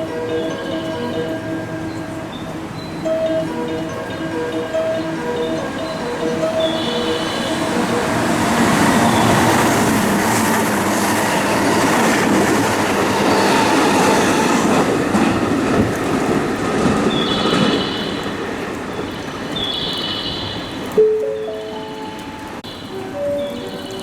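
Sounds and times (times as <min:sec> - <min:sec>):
high steady tone: 0:00.0 - 0:10.3
train wheels rushing on rails: 0:01.4 - 0:21.0.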